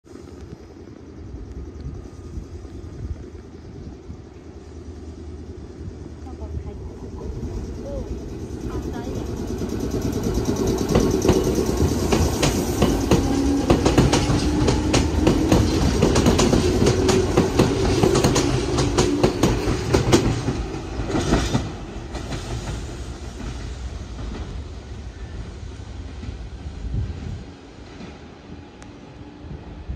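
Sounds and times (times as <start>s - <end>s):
train low steady tone: 0.1s - 29.9s
train wheels clicking over rail joints: 7.0s - 25.0s.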